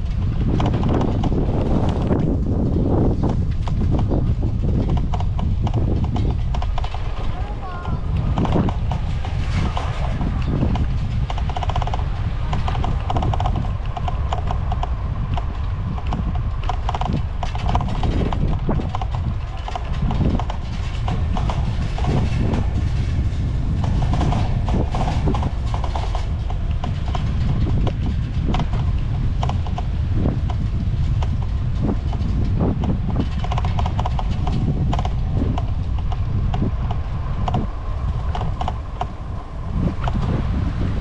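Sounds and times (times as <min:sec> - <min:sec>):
bicycle clicks and rattles: 0:00.0 - 0:07.3, 0:08.1 - 0:40.9
wind rumbling on microphone: 0:00.0 - 0:41.0.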